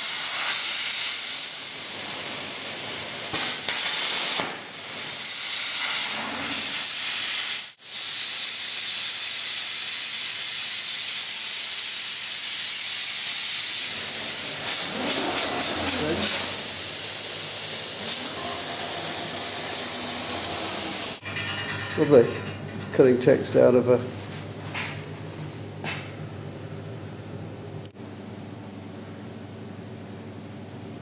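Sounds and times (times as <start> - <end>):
plasma torch cutting steel hiss: 0.0 - 21.2.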